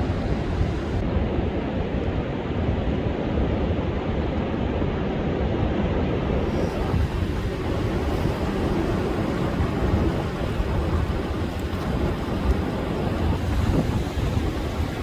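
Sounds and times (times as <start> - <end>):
wind buffeting microphone: 0.0 - 15.0
surf breaking on beach: 6.4 - 15.0.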